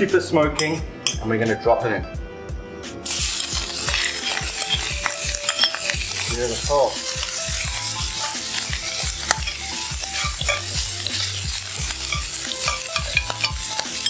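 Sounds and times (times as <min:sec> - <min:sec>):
spoon scraping a pan: 0:03.0 - 0:14.0
squid sizzling in oil: 0:03.0 - 0:14.0.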